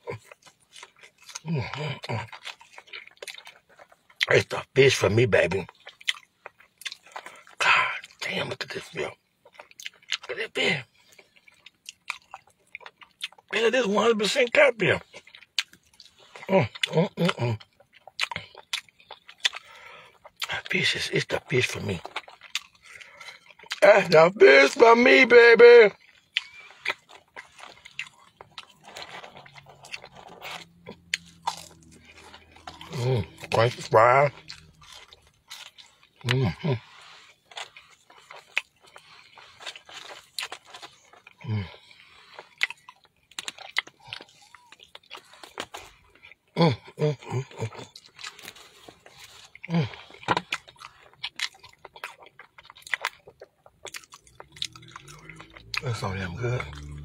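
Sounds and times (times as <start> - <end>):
biting into crunchy fry: 0.0 - 4.7, 15.0 - 23.8, 25.9 - 57.0
person chewing crispy food: 0.0 - 57.0
person murmuring: 16.5 - 17.6, 32.9 - 34.3, 36.2 - 36.8, 41.4 - 41.7, 46.6 - 47.7, 49.7 - 49.9.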